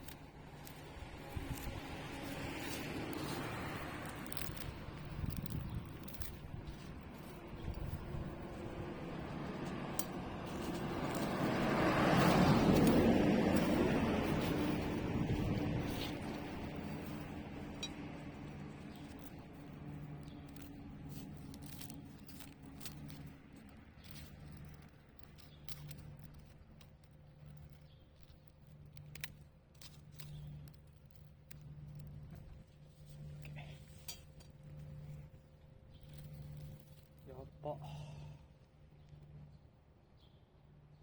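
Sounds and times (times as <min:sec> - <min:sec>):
low pulsing hum: 0:00.0 - 0:28.0
fire crackling and popping: 0:00.0 - 0:37.5.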